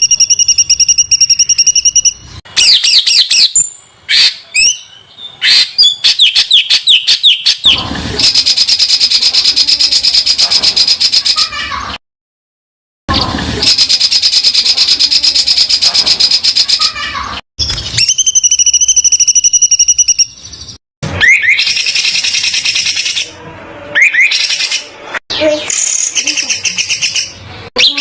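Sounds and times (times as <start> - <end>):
ringing bird trill: 0.0 - 7.6, 17.9 - 23.2.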